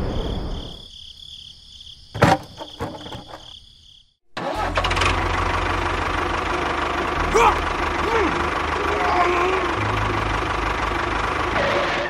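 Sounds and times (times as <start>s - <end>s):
small engine running: 4.4s - 12.0s.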